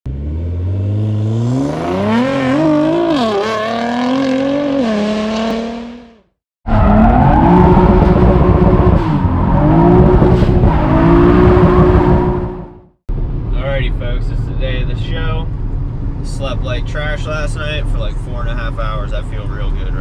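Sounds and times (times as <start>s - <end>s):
car engine revving: 0.1s - 12.9s
road noise: 0.1s - 20.0s.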